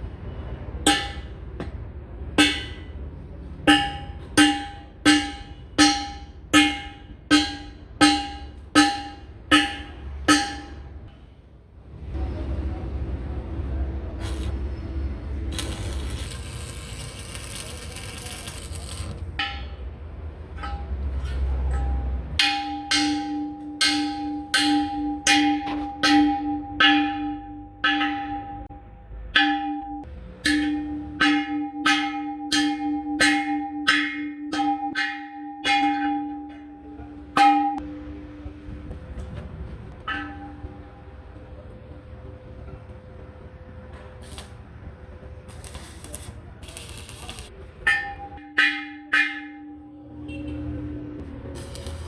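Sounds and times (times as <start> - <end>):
hammer striking steel wheel rim: 0.9 - 1.8, 2.4 - 11.2, 15.5 - 28.8, 29.4 - 38.2, 40.0 - 41.0, 45.5 - 50.4, 51.6 - 52.0.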